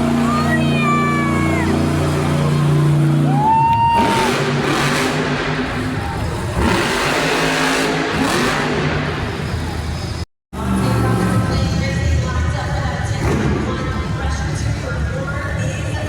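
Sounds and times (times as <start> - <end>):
motor engine revving: 0.0 - 3.4, 4.0 - 9.4, 13.1 - 14.2
crowd noise: 0.0 - 16.0.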